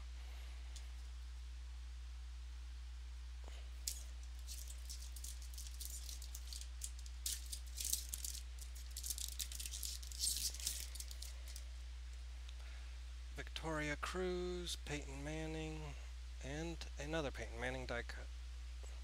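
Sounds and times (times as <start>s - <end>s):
low electrical hum: 0.0s - 19.0s
cards clicking and rustling: 3.8s - 11.6s.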